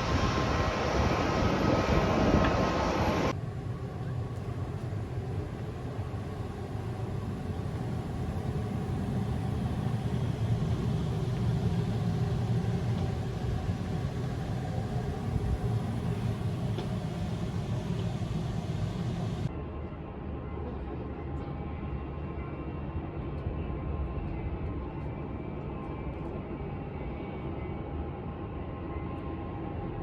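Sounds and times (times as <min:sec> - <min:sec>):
vehicle engine rumble: 0:03.2 - 0:19.5.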